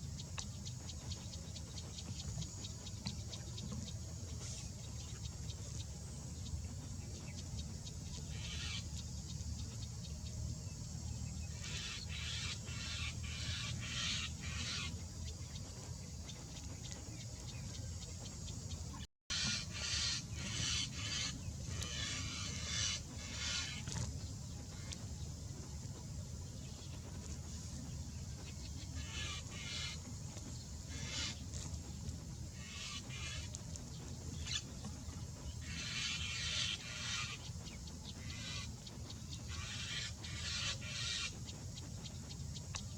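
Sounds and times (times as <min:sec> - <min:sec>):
harsh hissing bird calls: 0:08.1 - 0:09.0, 0:11.4 - 0:15.2, 0:19.3 - 0:25.0, 0:26.7 - 0:42.6.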